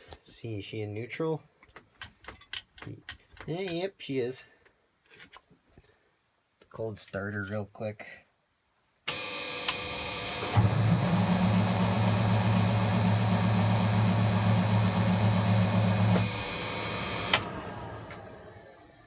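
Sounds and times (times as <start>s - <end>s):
diesel engine starter cranking: 9.1s - 19.0s
starter whir: 9.1s - 19.0s
starter click: 14.1s - 18.2s.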